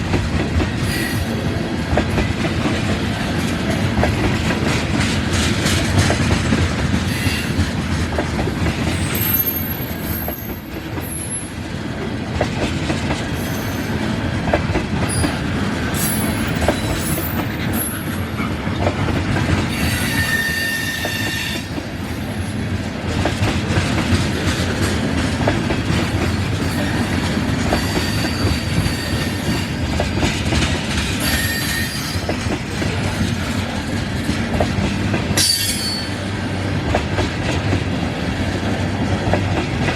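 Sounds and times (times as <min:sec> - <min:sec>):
freight train wheels clicking over joints: 0:00.0 - 0:39.9
high wheel squeals: 0:13.4 - 0:14.0, 0:19.7 - 0:21.7, 0:27.7 - 0:29.8, 0:31.2 - 0:32.3, 0:35.4 - 0:36.2.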